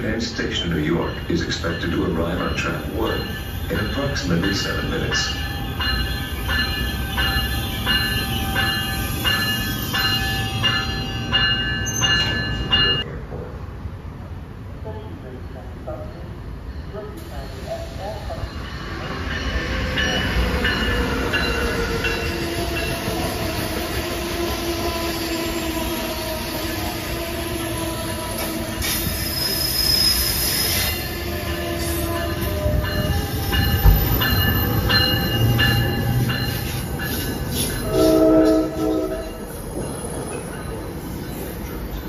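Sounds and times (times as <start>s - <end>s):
wheel and brake squeal: 28.4s - 31.2s
train horn blast: 37.8s - 39.4s.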